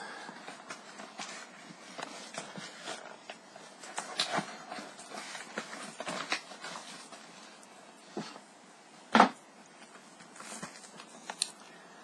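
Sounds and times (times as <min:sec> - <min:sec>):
plastic disc case knocks and rustles: 0:09.1 - 0:09.4.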